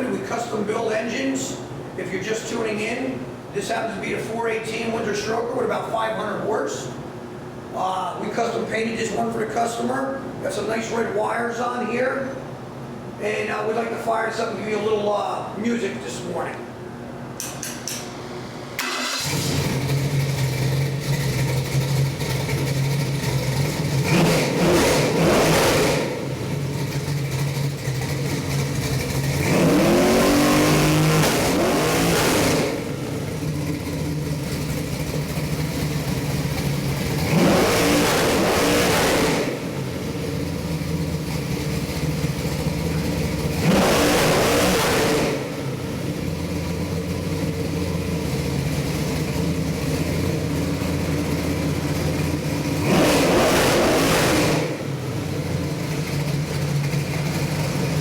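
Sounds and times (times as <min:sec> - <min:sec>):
engine idling: 0:18.8 - 0:58.0
engine revving: 0:18.8 - 0:58.0.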